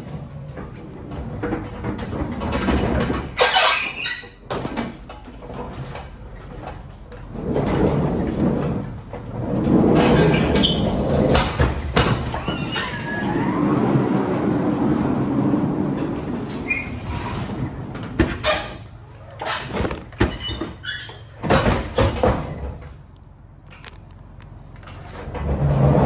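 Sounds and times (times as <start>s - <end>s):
metal scraping and rolling: 5.0s - 23.0s.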